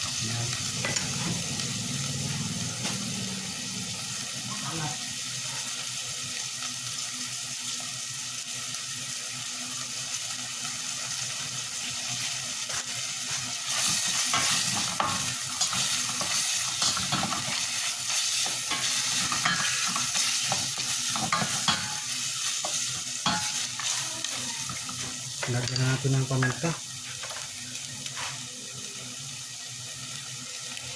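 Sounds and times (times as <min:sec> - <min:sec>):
chicken sizzling in frying pan: 0:00.0 - 0:30.9.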